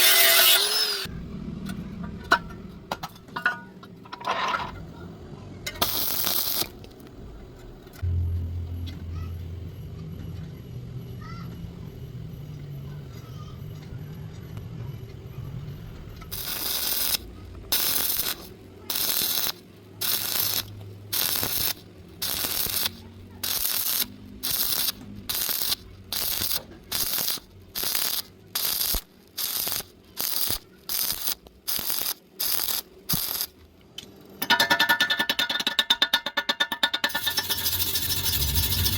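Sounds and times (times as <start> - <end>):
electric welding arc crackling: 5.8 - 6.9, 16.3 - 33.6, 37.1 - 38.9
low hum: 6.8 - 13.0, 37.1 - 38.9.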